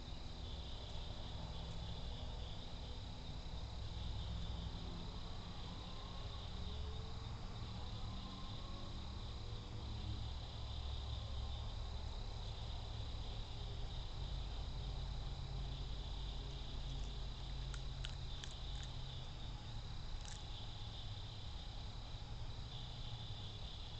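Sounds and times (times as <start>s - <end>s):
high-pitched insect trilling: 15.3s - 23.9s.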